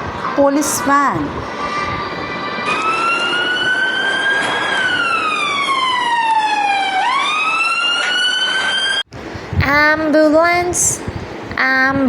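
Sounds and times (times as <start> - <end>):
police siren wailing: 1.4 - 9.1.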